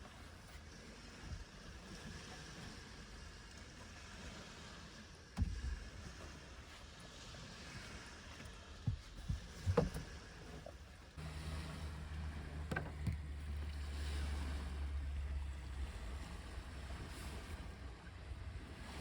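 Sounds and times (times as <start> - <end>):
wind rumble on microphone: 0.0 - 19.0
light knocks: 8.8 - 10.2.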